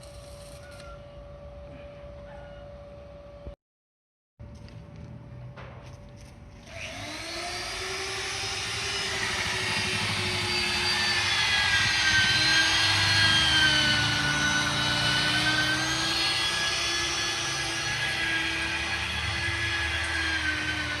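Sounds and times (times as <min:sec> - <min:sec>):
motor whining: 0:06.6 - 0:21.0.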